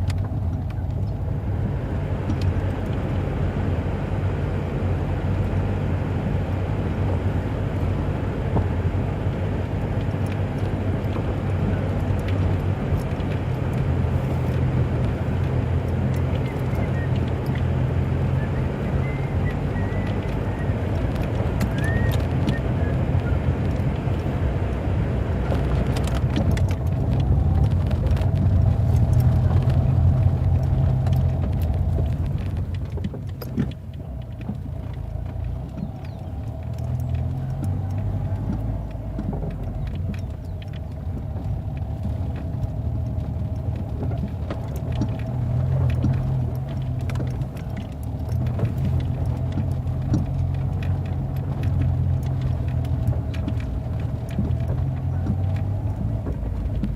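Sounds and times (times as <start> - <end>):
vehicle rumble: 0.0 - 56.9
small knocks and rattles: 8.5 - 56.9.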